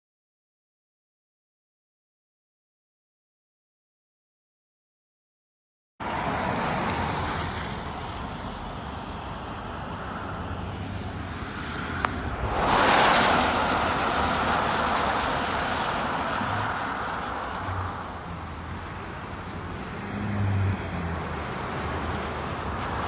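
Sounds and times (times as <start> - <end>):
rain on vehicle: 6.0 - 23.0
road noise from moving vehicle: 6.0 - 23.0.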